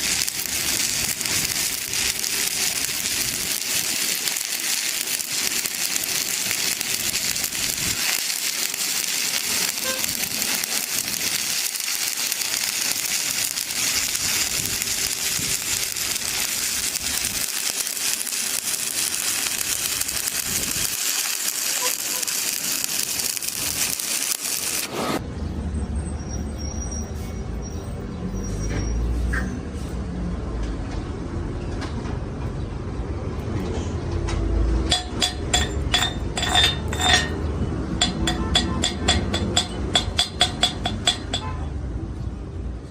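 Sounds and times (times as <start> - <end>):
welding arc crackling and hissing: 0.0 - 25.2, 34.8 - 41.5.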